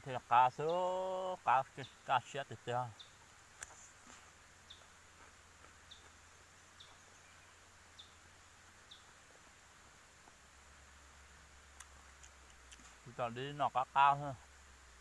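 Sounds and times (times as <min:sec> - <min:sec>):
small bird chirping: 0:01.7 - 0:10.5.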